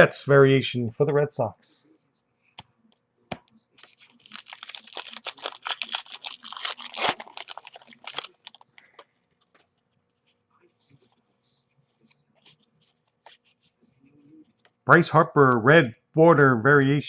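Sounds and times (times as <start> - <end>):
plastic wrapper tearing and crinkling: 3.8 - 8.7.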